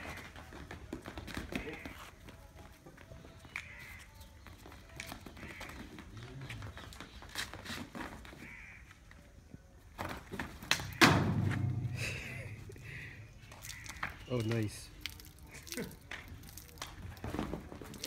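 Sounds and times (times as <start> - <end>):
footsteps on brick paving: 0.0 - 18.0
hooves on brick paving: 0.0 - 18.0
harsh bird calls: 3.4 - 7.6, 10.8 - 14.9.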